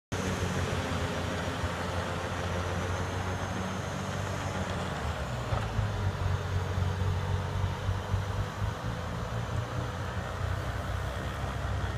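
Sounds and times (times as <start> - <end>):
diesel engine running: 0.1 - 11.9.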